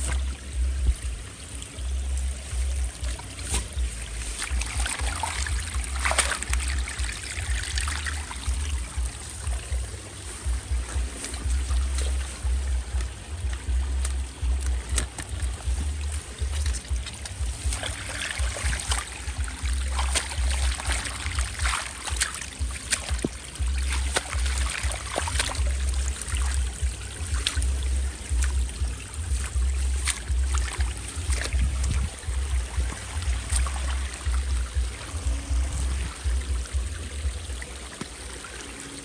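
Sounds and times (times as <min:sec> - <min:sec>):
low rumble on microphone: 0:00.0 - 0:39.0
water trickling and splashing: 0:00.0 - 0:39.0.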